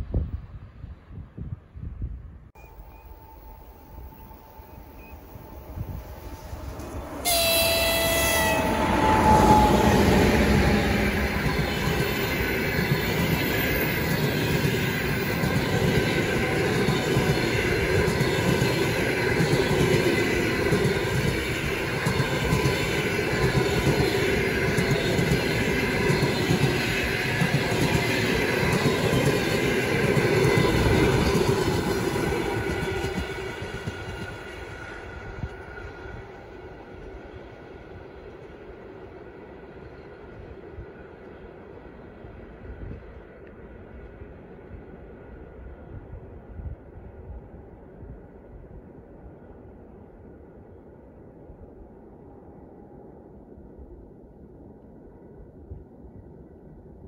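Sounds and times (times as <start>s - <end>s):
train wheels on track: 2.5s - 50.8s
train horn blast: 7.1s - 11.3s.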